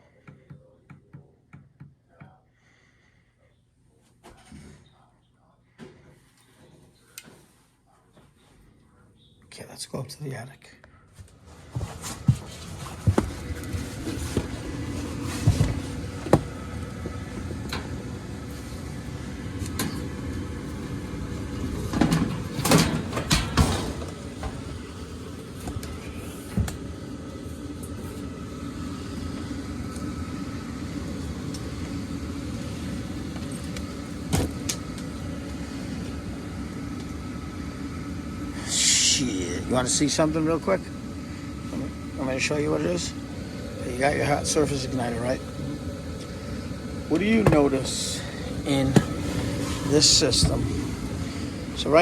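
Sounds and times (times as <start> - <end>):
furnace fan motor humming: 9.5 - 52.0
knocks and clunks of handling: 48.9 - 50.8.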